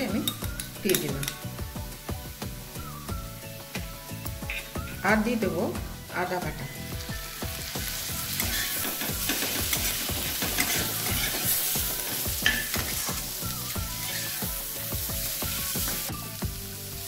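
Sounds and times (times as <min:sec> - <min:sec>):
onions sizzling in hot oil: 0:00.0 - 0:17.0
spatula scraping pan: 0:08.3 - 0:13.2, 0:13.8 - 0:14.6.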